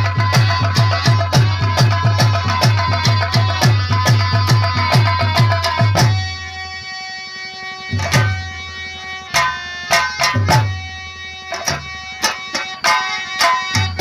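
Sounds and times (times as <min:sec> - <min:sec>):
booming drum beats: 0:00.0 - 0:06.4, 0:09.4 - 0:10.9
harmonium melody: 0:00.0 - 0:14.0.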